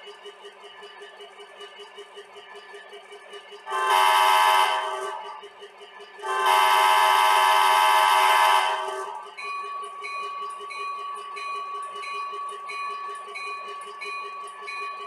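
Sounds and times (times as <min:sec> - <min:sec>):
faint model train running: 0:00.0 - 0:15.0
model train horn blasts: 0:03.7 - 0:05.4, 0:06.2 - 0:09.2.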